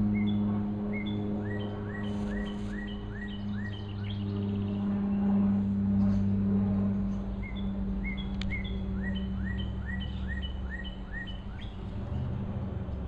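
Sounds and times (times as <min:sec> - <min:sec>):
steady low hum: 0:00.0 - 0:13.0
small bird whistling song: 0:00.1 - 0:04.6, 0:07.4 - 0:11.8.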